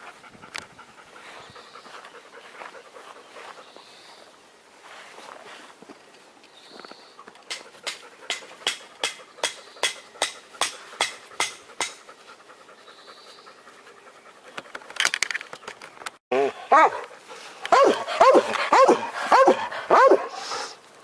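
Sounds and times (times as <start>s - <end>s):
dog panting: 0.0s - 3.8s, 7.5s - 14.8s, 16.9s - 20.8s.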